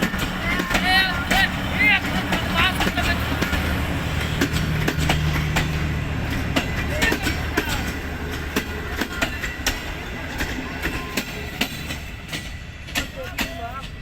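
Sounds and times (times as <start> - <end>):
railway coaches rumbling: 0.0 - 14.0
train wheels clacking over rail joints: 0.0 - 14.0.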